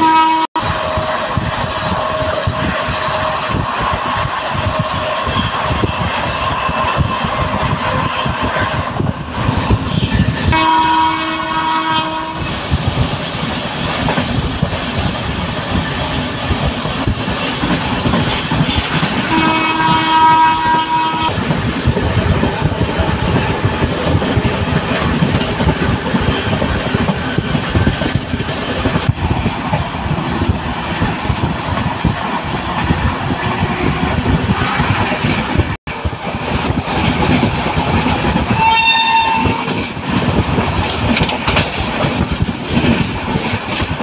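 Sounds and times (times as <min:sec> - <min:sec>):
train horn blowing: 0:00.0 - 0:01.1, 0:10.5 - 0:12.5, 0:19.3 - 0:21.4, 0:38.5 - 0:39.8
train wheels on rails: 0:00.0 - 0:44.0.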